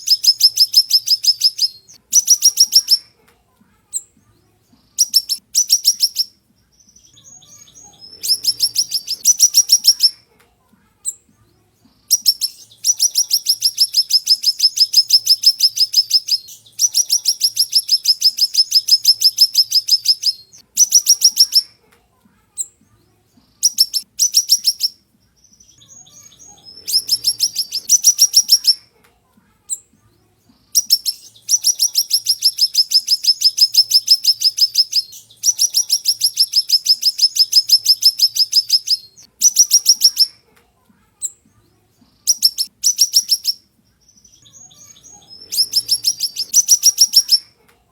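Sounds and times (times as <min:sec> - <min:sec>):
songbird trilling: 0:00.0 - 0:03.0, 0:05.0 - 0:10.2, 0:12.1 - 0:21.7, 0:23.6 - 0:28.8, 0:30.8 - 0:40.3, 0:42.3 - 0:47.5.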